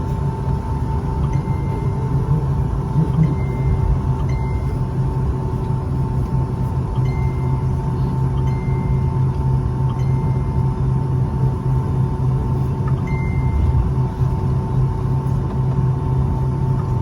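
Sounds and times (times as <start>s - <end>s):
aircraft cabin rumble: 0.0s - 17.0s
constant whine: 0.0s - 17.0s.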